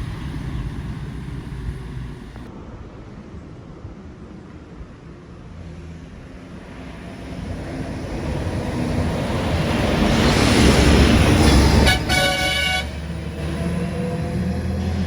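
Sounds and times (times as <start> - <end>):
heavy truck engine rumble: 0.0 - 2.5, 6.8 - 15.0
truck tyre noise: 0.0 - 2.5.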